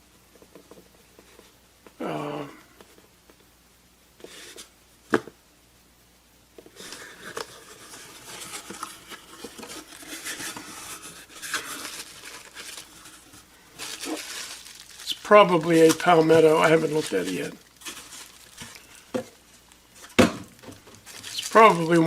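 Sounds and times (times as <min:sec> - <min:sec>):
packing material crinkling: 0:06.7 - 0:22.0.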